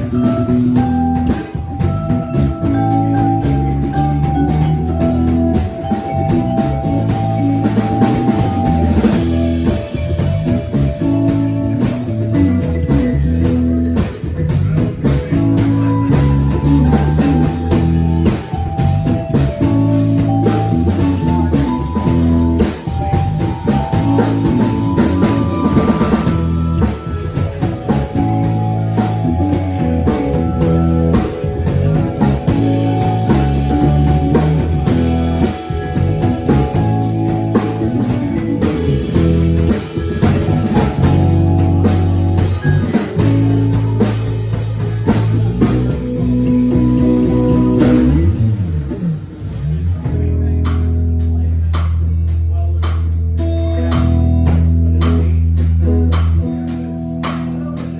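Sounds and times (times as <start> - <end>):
rock band playing: 0.0 - 57.9.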